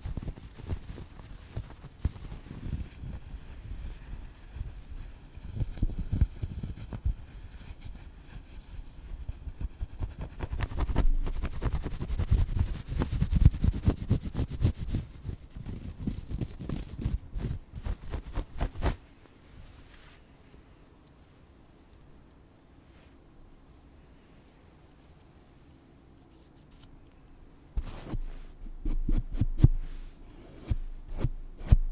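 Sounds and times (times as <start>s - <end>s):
scratching on microphone: 0.0s - 20.2s, 24.8s - 27.0s, 27.8s - 31.9s
crickets chirring: 20.2s - 31.9s.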